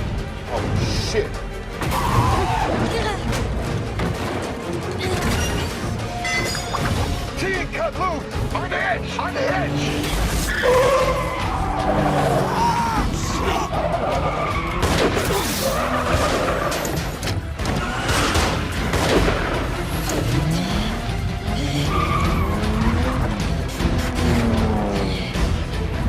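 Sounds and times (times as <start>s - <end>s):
orchestral score: 0.0s - 26.0s
engines revving: 8.2s - 26.0s
tyres skidding: 8.6s - 26.0s.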